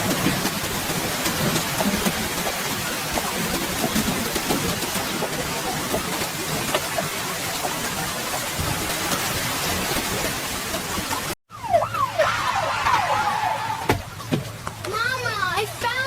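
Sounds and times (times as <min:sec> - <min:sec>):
wailing siren-like tone: 0:11.5 - 0:13.9.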